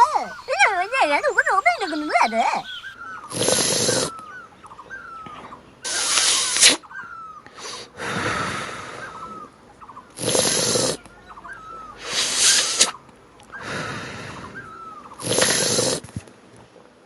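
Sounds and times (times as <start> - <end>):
faint bird chirps: 0.0 - 16.1
loud hissing bursts: 3.3 - 4.1, 5.9 - 6.8, 10.2 - 11.0, 12.0 - 13.0, 13.6 - 16.2.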